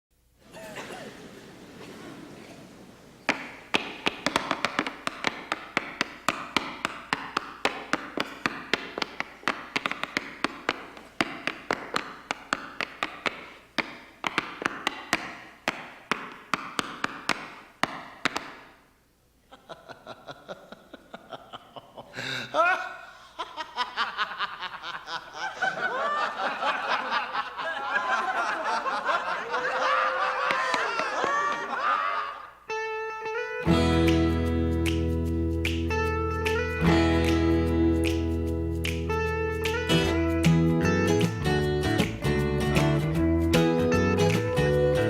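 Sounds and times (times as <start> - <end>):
tap shoes on stage floor: 3.2 - 18.8.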